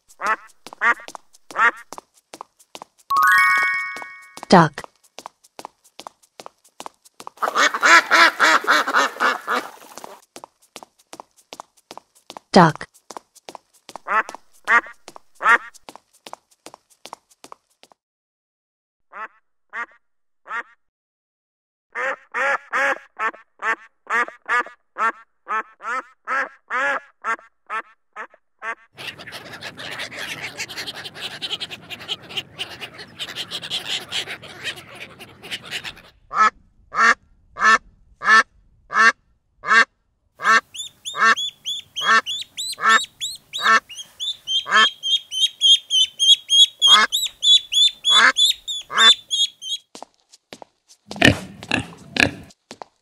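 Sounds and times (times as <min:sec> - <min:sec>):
ducks quacking: 0:00.1 - 0:02.0, 0:07.4 - 0:10.2, 0:14.0 - 0:15.8, 0:22.0 - 0:49.8
flock chatter: 0:29.0 - 0:36.0
ducklings peeping: 0:29.0 - 0:36.1, 0:40.4 - 0:49.8.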